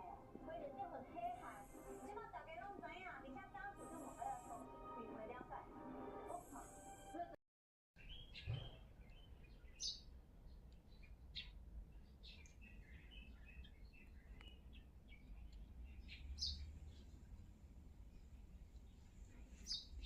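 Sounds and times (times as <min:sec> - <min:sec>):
bird chirps: 0:08.0 - 0:10.1
brief thump: 0:08.4 - 0:08.8.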